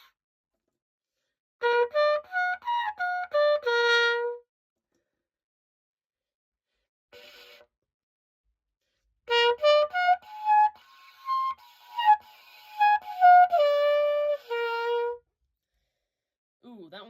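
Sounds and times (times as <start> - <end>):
cornet playing notes: 1.6 - 4.4, 9.3 - 15.2.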